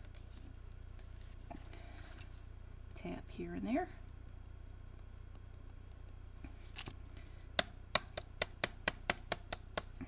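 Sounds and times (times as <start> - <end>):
soft ticks: 3.9 - 6.5.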